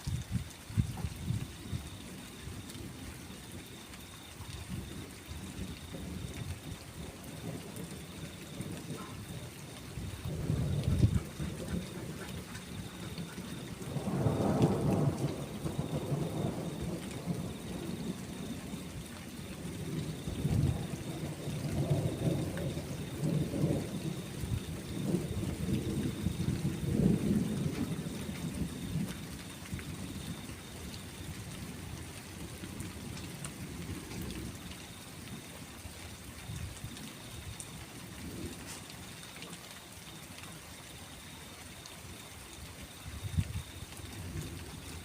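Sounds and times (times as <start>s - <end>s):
steady rain: 0.0s - 45.0s
rolling thunder: 4.7s - 30.6s.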